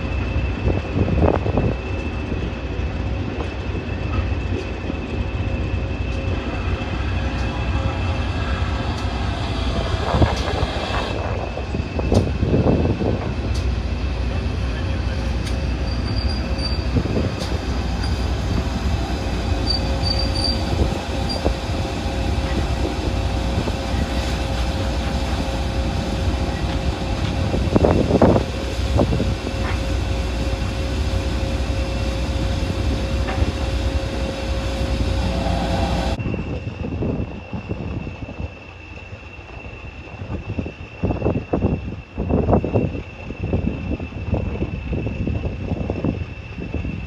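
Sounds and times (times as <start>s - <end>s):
train wheels rumbling on rails: 0.0s - 47.0s
wheel flanges squealing: 14.6s - 28.4s.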